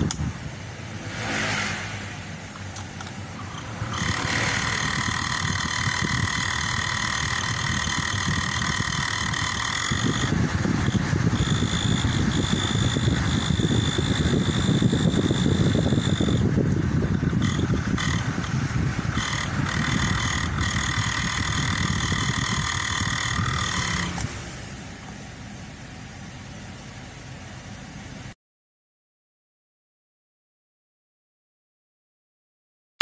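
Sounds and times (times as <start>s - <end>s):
low rumble: 0.0s - 20.0s
blower fan high whine: 0.0s - 28.4s.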